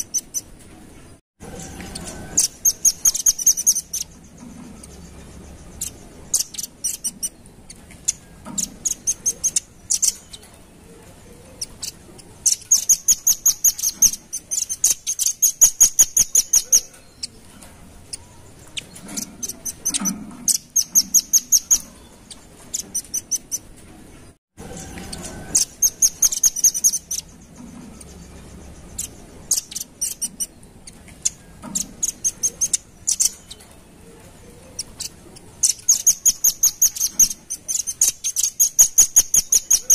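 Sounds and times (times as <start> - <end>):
nuthatch calling high chips: 25.2 - 27.3, 34.8 - 39.9.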